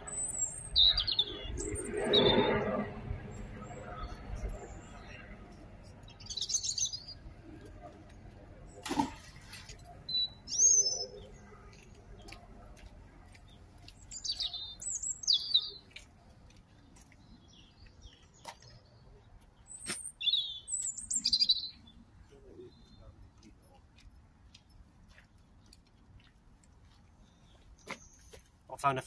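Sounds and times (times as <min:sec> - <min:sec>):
bird chirping: 0:00.0 - 0:02.7, 0:03.3 - 0:07.3, 0:10.0 - 0:12.4, 0:13.4 - 0:16.0, 0:17.2 - 0:23.4.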